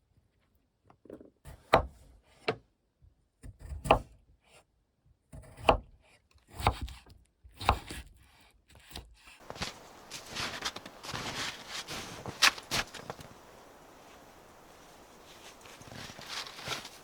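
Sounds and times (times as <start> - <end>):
rustling scraping noise: 9.4 - 17.0.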